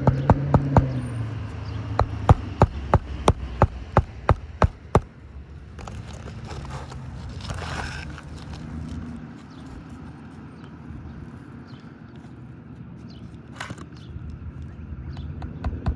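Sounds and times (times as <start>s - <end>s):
hammer striking nails: 0.0s - 1.1s, 2.0s - 5.1s.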